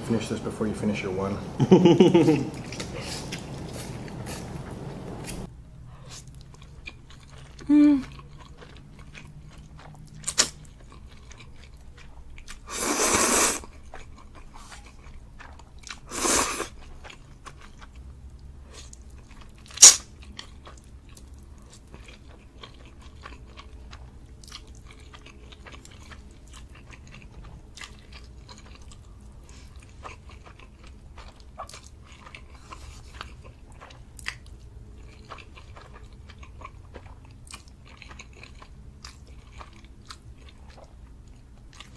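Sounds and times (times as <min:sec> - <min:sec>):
wet chewing clicks: 0:02.0 - 0:12.7, 0:16.7 - 0:41.9
noodle slurps: 0:12.7 - 0:13.7.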